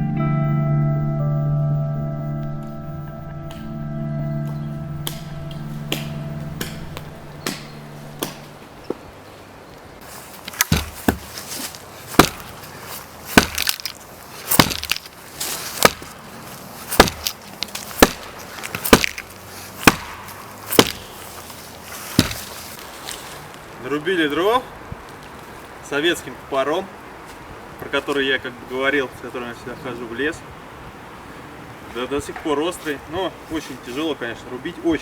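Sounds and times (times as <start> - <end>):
background music: 0.0 - 8.8
axe chopping firewood: 5.9 - 8.5, 10.4 - 12.6, 13.3 - 15.1, 15.7 - 16.2, 16.9 - 21.2, 22.0 - 22.5.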